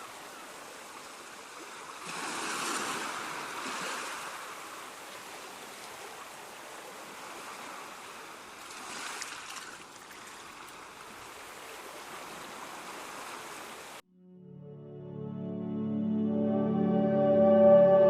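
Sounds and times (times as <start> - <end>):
ocean surf washing ashore: 0.0 - 9.5
soft ambient music: 14.1 - 18.0.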